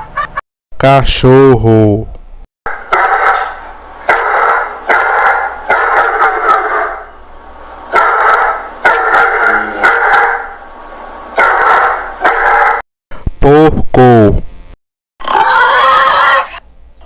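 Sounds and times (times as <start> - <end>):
dog barking: 2.7 - 7.1, 7.9 - 10.6, 11.4 - 12.8.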